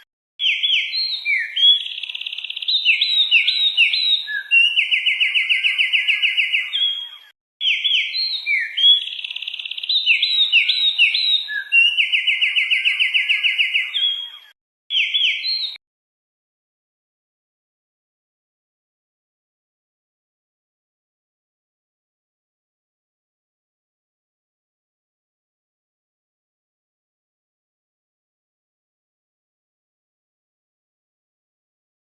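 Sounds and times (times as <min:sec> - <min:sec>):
songbird whistling and trilling: 0:00.4 - 0:15.8.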